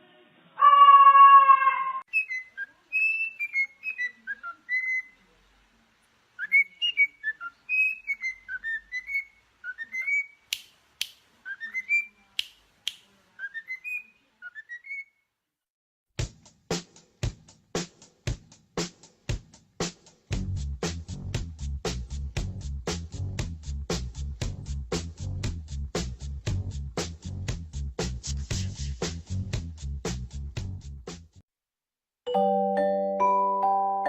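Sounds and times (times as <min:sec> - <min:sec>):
parrot loud held call: 0:00.6 - 0:02.0
parrot whistling a tune: 0:02.1 - 0:05.2, 0:06.4 - 0:10.4, 0:11.5 - 0:12.2, 0:13.4 - 0:15.2
music with a strong beat: 0:16.2 - 0:31.4.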